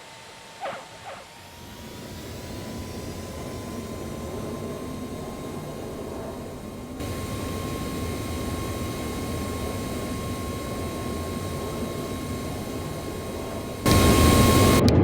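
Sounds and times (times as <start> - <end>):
jet engines spooling up: 0.0 - 15.0.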